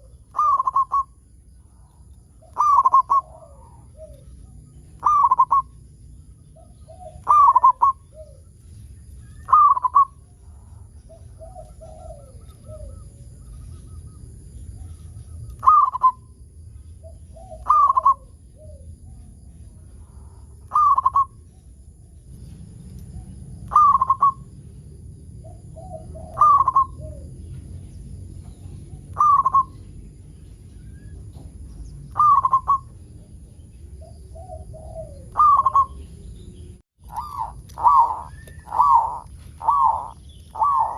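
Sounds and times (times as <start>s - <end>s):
dove cooing: 0.0s - 1.8s, 2.4s - 5.8s, 6.6s - 8.5s, 9.4s - 13.4s, 14.8s - 16.2s, 17.0s - 18.9s, 20.7s - 21.4s, 23.2s - 24.5s, 25.4s - 27.5s, 28.7s - 29.8s, 32.1s - 33.0s, 34.0s - 36.2s, 37.0s - 40.9s.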